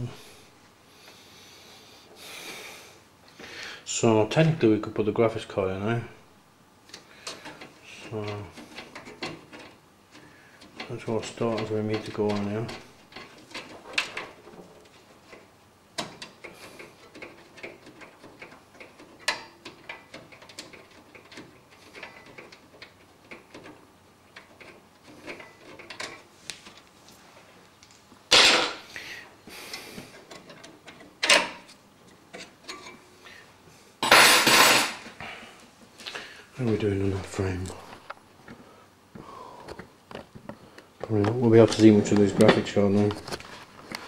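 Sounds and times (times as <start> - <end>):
computer parts clicking and tapping: 6.9 - 26.7.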